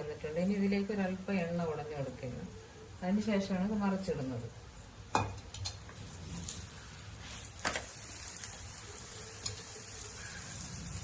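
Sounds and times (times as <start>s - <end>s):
flatbread sizzling in oil: 5.0s - 11.0s.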